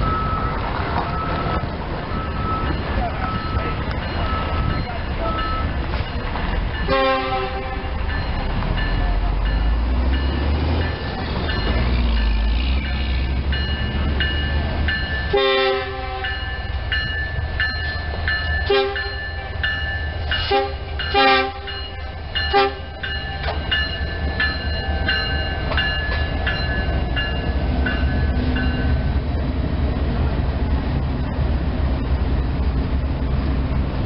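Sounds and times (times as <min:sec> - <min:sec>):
freight cars rolling by: 0:00.0 - 0:34.0
locomotive engines and wheels rumbling: 0:00.0 - 0:34.0
bell ringing: 0:02.1 - 0:06.9, 0:16.2 - 0:29.0
train horn blasts: 0:06.8 - 0:08.0, 0:15.3 - 0:16.4, 0:18.7 - 0:19.2, 0:20.4 - 0:23.0.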